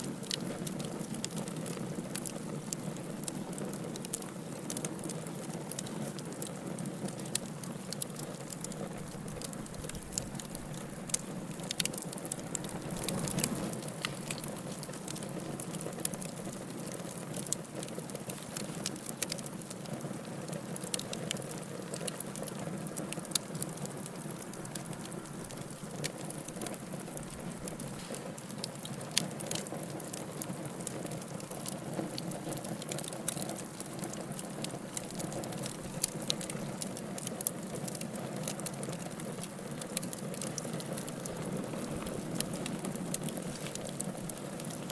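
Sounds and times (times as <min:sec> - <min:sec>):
wood fire crackling and popping: 0:00.0 - 0:44.9
rushing rumble of flame: 0:07.1 - 0:17.5, 0:40.6 - 0:44.7.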